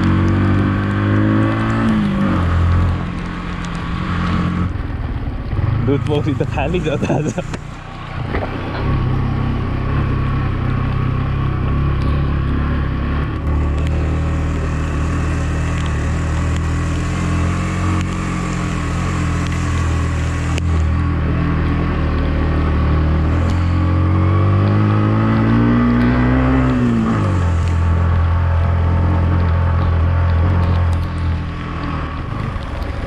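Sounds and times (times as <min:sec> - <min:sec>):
motorcycle engine running: 0:02.4 - 0:25.4.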